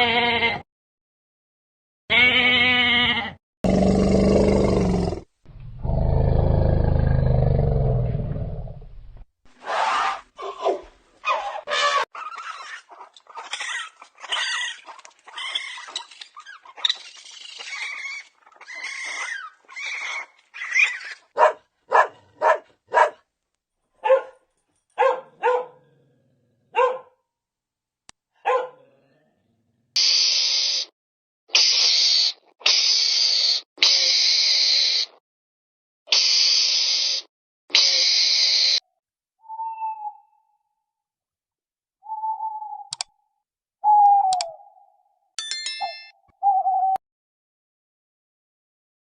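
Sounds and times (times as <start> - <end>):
dog barking: 21.4 - 23.2, 24.0 - 24.4, 25.0 - 25.8, 26.7 - 27.2, 28.4 - 28.9
animal hissing calls: 30.0 - 30.9, 31.5 - 35.2, 36.1 - 38.8.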